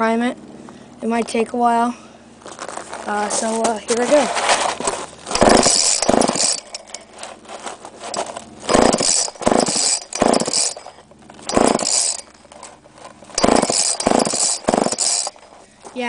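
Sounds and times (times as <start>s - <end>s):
chainsaw engine turning over: 2.4s - 16.0s
chainsaw starter rope yanked: 2.4s - 16.0s.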